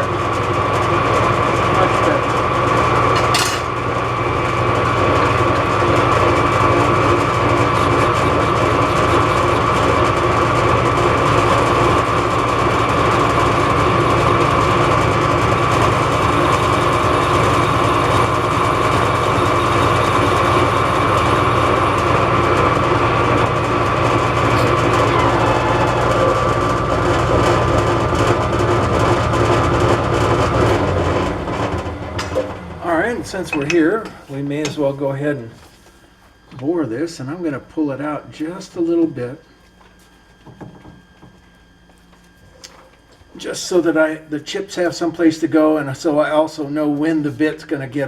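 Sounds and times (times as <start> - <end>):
metal lathe whine: 0.0 - 35.2.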